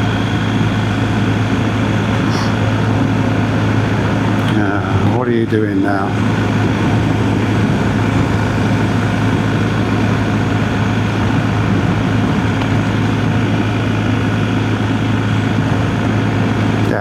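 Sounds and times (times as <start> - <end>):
motorcycle engine idling: 5.9 - 16.5.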